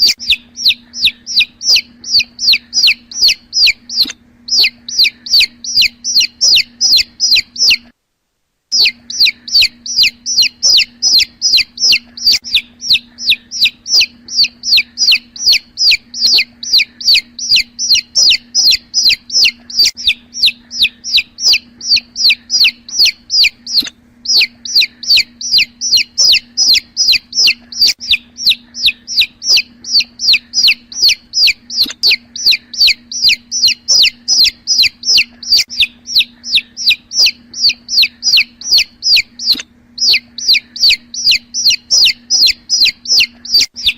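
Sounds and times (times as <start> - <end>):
chicks peeping: 0.0 - 7.9, 8.7 - 43.9
steady low hum: 0.0 - 43.9.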